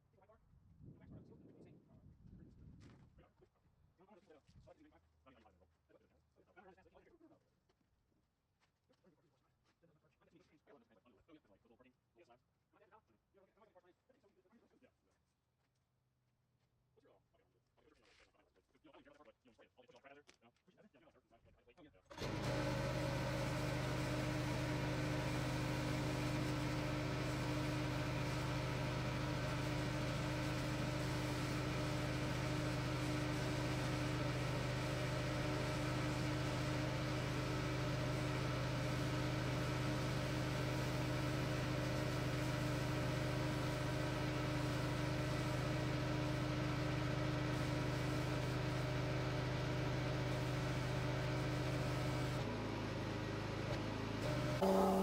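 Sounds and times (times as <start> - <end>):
machine hum with low drone: 54.2 - 55.0.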